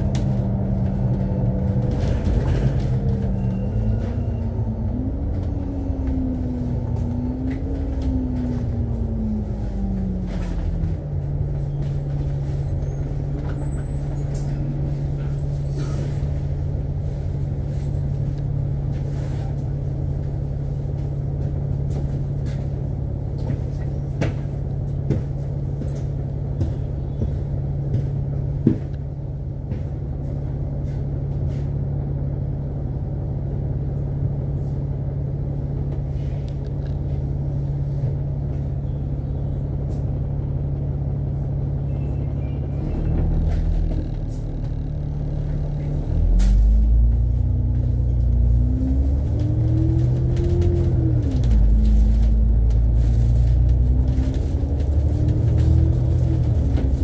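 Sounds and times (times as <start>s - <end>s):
bus engine droning: 0.0s - 57.0s
road rumble: 0.0s - 57.0s.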